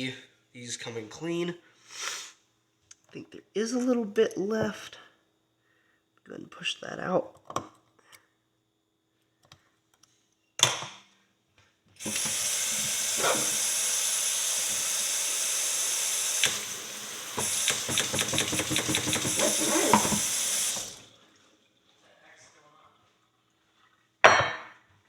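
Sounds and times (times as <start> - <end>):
tap water running: 12.0 - 22.0
knock: 17.4 - 20.3.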